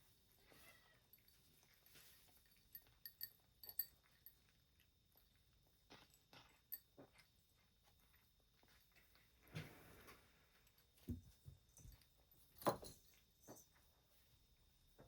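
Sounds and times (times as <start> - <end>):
cats crunching dry food: 0.4 - 9.5.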